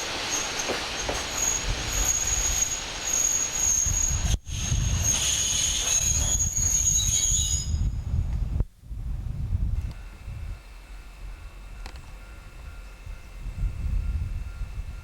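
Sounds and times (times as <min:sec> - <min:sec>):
train wheels rumbling on rails: 0:00.0 - 0:15.0
high-pitched wheel squeal: 0:00.3 - 0:07.9.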